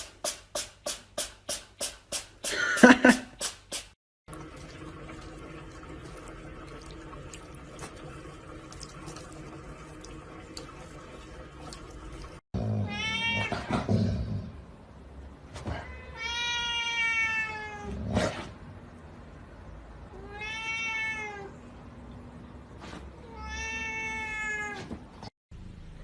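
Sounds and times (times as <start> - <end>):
cat meowing: 12.8 - 13.7, 15.8 - 18.0, 20.1 - 21.6, 23.2 - 24.9.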